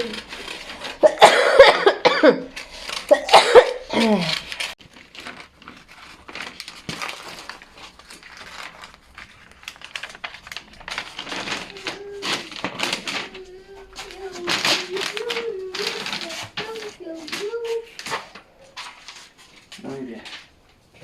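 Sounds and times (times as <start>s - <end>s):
faint rustling: 0.0s - 1.3s, 2.5s - 21.0s
voice or coughing: 1.0s - 2.5s, 3.1s - 4.4s.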